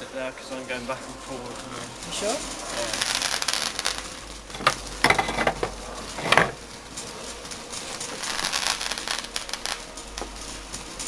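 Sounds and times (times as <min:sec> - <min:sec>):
firework crackling: 0:00.0 - 0:11.0
firework bangs: 0:02.6 - 0:07.2, 0:07.8 - 0:10.4.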